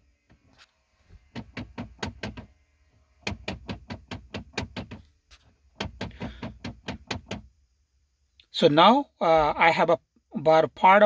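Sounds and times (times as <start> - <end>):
actuator knocking behind dashboard: 1.3 - 2.5, 3.2 - 5.1, 5.8 - 7.5.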